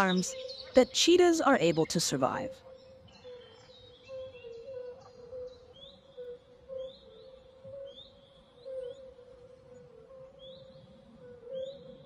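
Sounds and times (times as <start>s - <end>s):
small birds chirping: 0.0s - 12.0s
soft wavering low tone: 0.0s - 12.0s.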